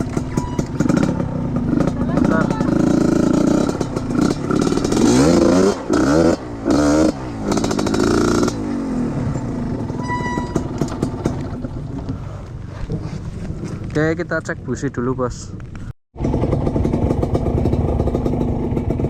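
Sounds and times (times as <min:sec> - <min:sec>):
motorcycle engine revving: 0:00.0 - 0:12.4, 0:16.2 - 0:19.0.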